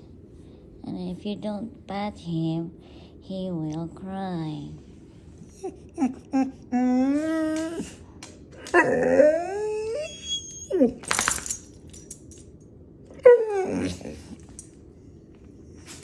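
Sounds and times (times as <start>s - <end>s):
dog whining and crying: 5.5s - 8.0s, 8.6s - 11.3s, 13.1s - 14.5s.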